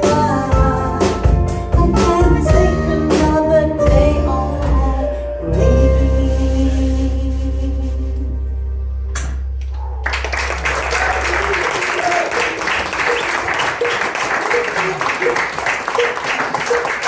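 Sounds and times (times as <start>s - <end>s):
band playing pop-rock: 0.0s - 7.0s.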